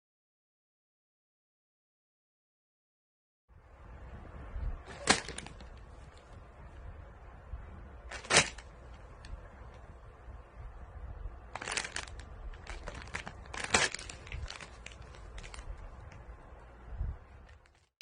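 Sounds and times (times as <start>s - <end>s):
sharp crinkling noises: 4.8s - 6.9s, 8.0s - 9.9s, 11.4s - 18.0s.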